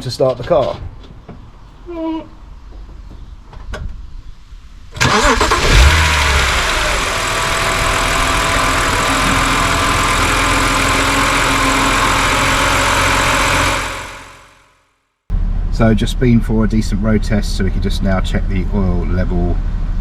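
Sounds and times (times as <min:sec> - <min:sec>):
car engine starting and idling: 0:05.0 - 0:14.6.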